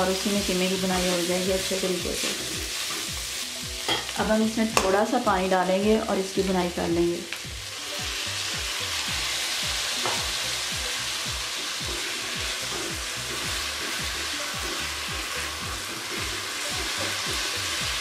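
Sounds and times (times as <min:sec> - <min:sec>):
meat sizzling in a wok: 0:00.0 - 0:18.0
spatula stirring and scraping: 0:00.7 - 0:04.1.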